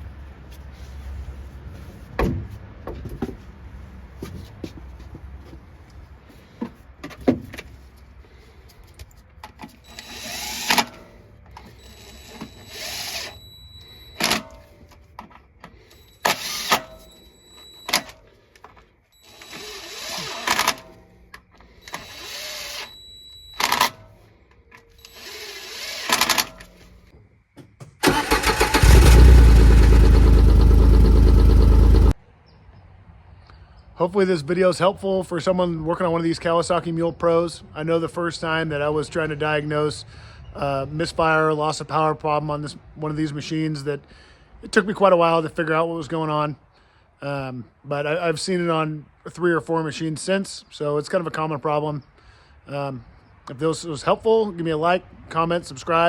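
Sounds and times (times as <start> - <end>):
hand tool bursts: 9.8 - 14.8, 15.9 - 17.1, 19.2 - 21.0, 25.0 - 26.9, 28.0 - 30.8
engine starting and running loudly: 28.0 - 32.2.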